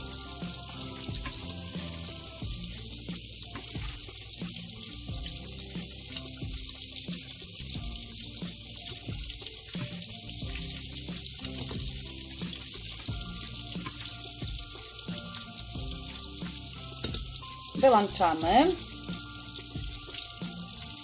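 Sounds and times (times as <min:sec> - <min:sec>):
fish sizzling in oil: 0:00.0 - 0:21.0.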